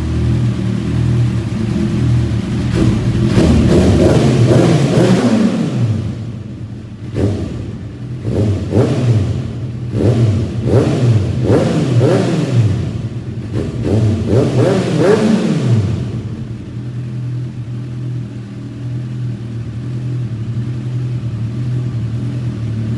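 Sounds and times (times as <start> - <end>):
motorcycle engine throttle blips: 0.0 - 22.9.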